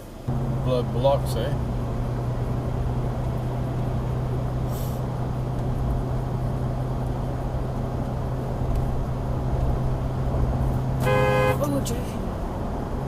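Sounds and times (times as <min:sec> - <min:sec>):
truck road and engine noise: 0:00.0 - 0:13.0
short high hiss: 0:04.7 - 0:05.1.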